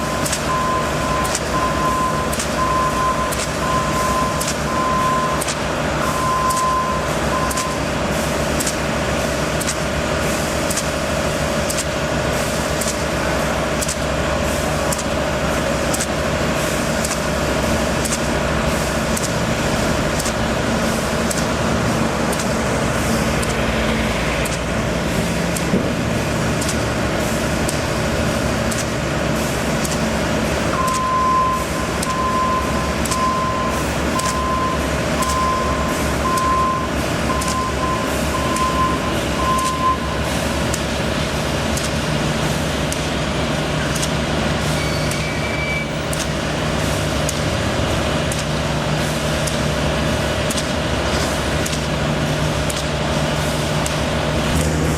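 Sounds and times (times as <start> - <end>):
reversing alarm beeps: 0.0 - 7.9, 30.7 - 40.3, 44.8 - 46.2
construction vehicle engine running: 0.0 - 54.9.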